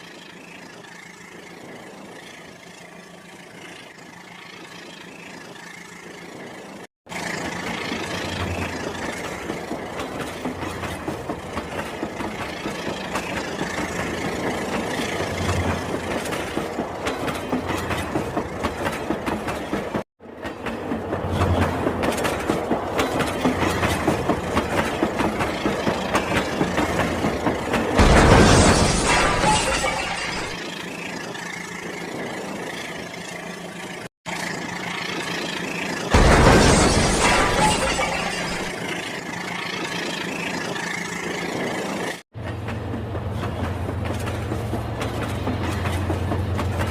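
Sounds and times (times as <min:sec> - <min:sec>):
train wheels clickety-clack: 0:07.2 - 0:28.1, 0:38.7 - 0:46.9.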